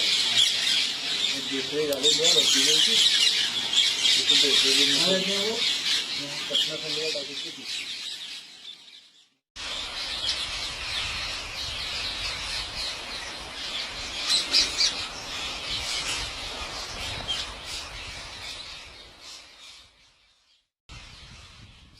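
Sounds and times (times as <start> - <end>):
parrots squawking and chirping: 0.0 - 9.0.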